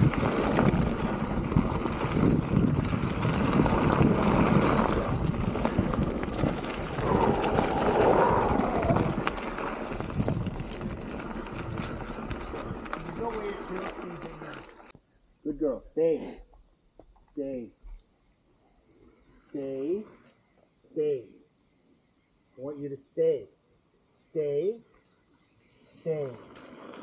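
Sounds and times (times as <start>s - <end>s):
wind buffeting microphone: 0.0s - 14.6s
bike tyres on dirt trail: 0.0s - 15.0s, 25.1s - 27.0s.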